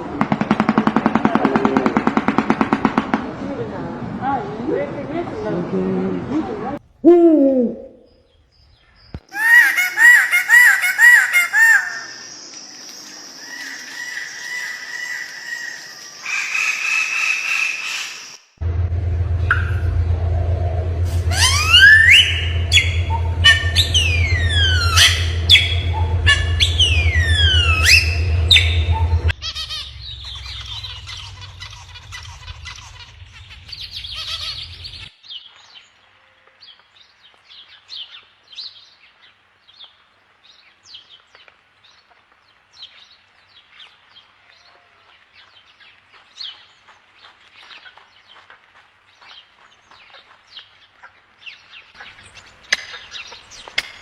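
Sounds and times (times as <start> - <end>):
steady low hum: 18.6 - 35.1
bird whistles and chirps: 21.3 - 35.1.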